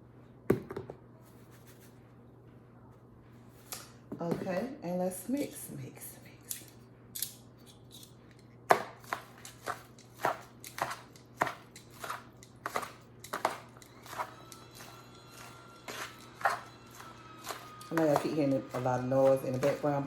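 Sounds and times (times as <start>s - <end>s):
utensils knocking against bowl: 8.7s - 20.0s.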